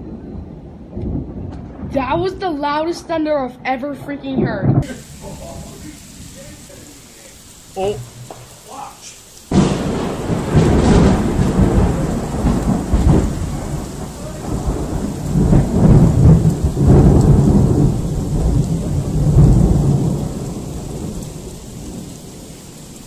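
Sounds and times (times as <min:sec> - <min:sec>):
rain: 0:00.0 - 0:03.6, 0:04.3 - 0:23.0
thunder rumbling: 0:00.0 - 0:23.0.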